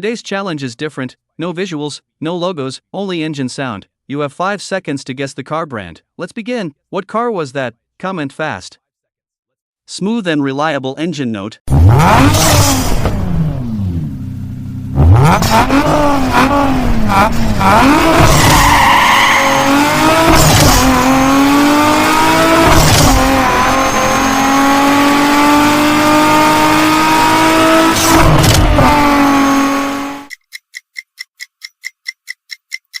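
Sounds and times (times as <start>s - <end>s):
car engine revving: 11.7s - 30.3s.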